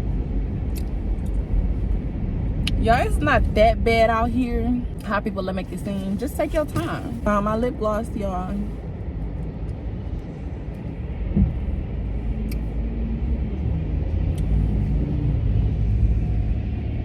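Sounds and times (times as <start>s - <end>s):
road and engine noise in car: 0.0s - 17.0s
brief thump: 11.3s - 11.6s.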